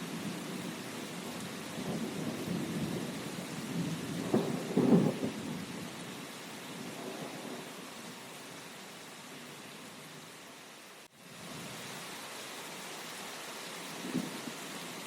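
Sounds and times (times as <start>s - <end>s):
rain hissing: 0.0s - 15.0s
thunder rumbling: 1.3s - 5.9s.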